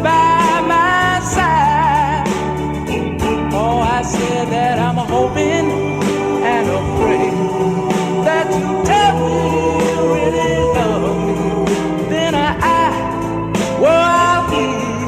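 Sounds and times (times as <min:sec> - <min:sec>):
lead voice singing with vibrato: 0:03.6 - 0:15.0
vocal group singing in harmony: 0:04.0 - 0:15.0.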